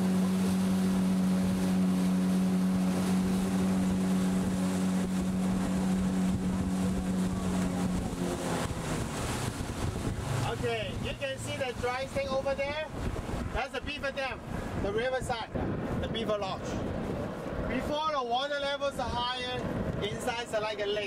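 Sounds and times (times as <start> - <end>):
boat motor running: 0.0 - 14.9
wind buffeting microphone: 0.0 - 21.0.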